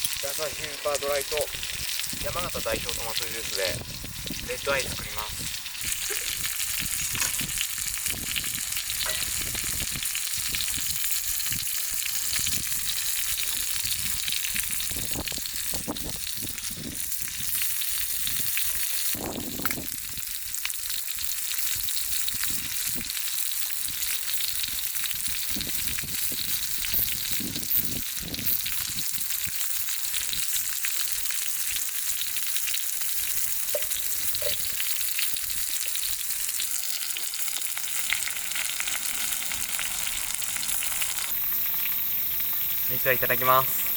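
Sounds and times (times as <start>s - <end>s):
food sizzling in a pan: 0.0s - 43.9s
wood fire popping: 0.0s - 43.9s.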